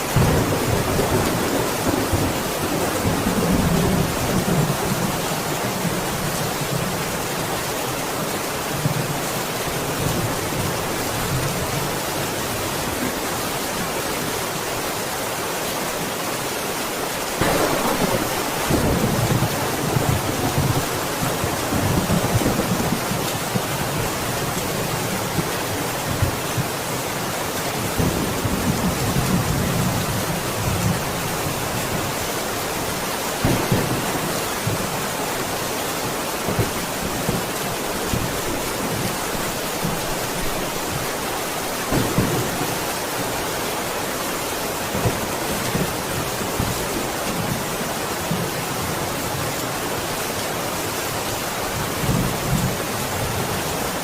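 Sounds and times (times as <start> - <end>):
steady rain: 0.0 - 54.0
low rolls of thunder: 17.4 - 23.7.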